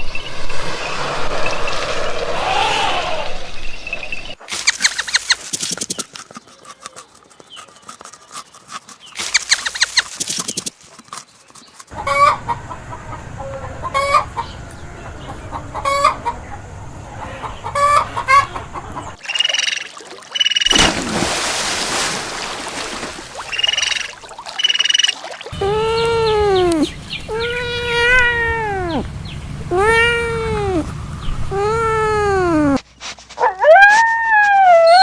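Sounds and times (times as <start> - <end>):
low rumble: 0.0 - 4.4, 25.6 - 32.2
chickens clucking: 11.9 - 19.2, 23.4 - 32.5.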